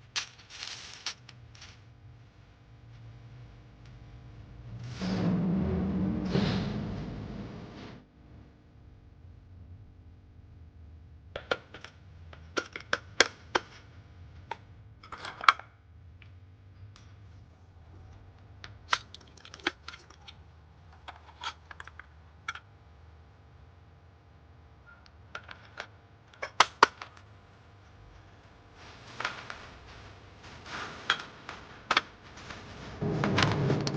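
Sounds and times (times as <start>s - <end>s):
small objects clicking when handled: 0.2s - 1.8s.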